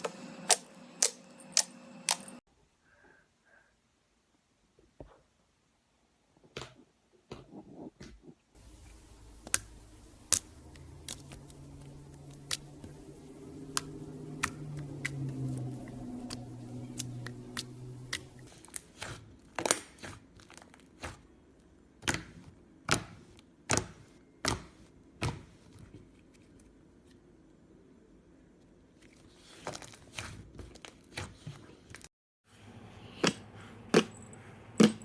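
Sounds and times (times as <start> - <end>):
faint low hum: 7.6 - 18.6.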